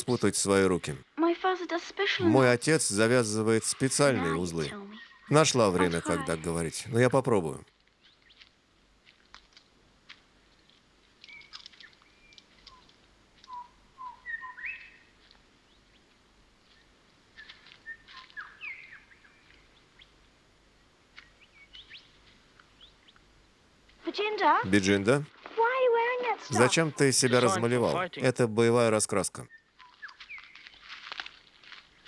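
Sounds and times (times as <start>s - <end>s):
woodland ambience: 0.0s - 32.0s
faint bird chirps: 4.9s - 5.7s, 11.2s - 16.1s, 16.7s - 20.2s, 29.4s - 30.9s.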